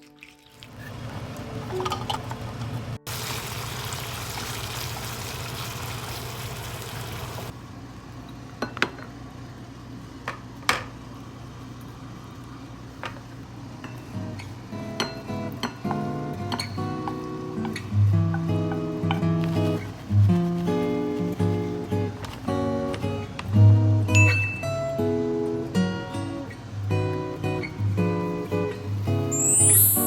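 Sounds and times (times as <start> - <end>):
food sizzling in a frying pan: 3.1 - 7.5.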